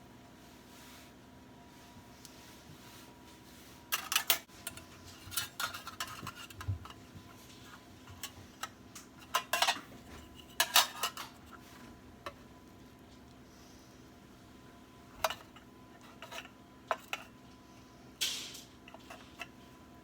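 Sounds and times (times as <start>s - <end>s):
utensils and dishes clinking: 3.9s - 11.6s, 15.2s - 17.3s, 18.2s - 19.5s.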